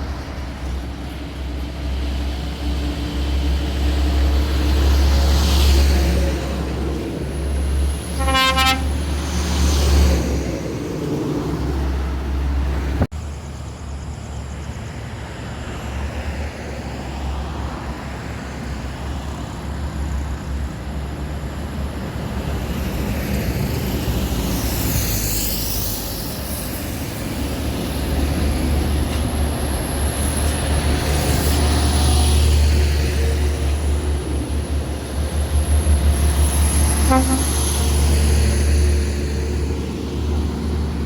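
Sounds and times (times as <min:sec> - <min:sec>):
road and tyre noise: 0:00.0 - 0:41.0.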